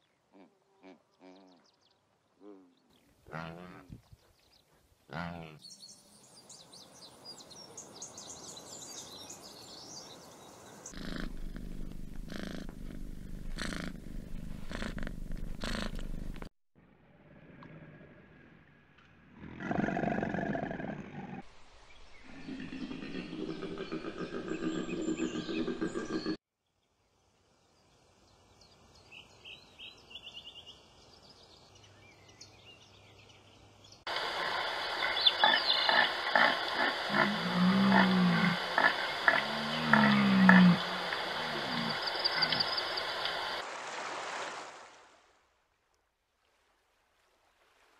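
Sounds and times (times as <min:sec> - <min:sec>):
animal sounds: 0:00.3 - 0:01.6, 0:02.4 - 0:06.2, 0:10.9 - 0:16.4, 0:34.1 - 0:43.6
deer stag roaring: 0:36.4 - 0:42.6.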